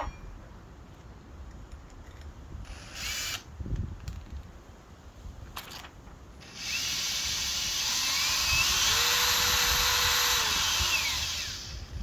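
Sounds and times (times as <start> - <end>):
cordless drill motor whine: 6.4 - 12.0.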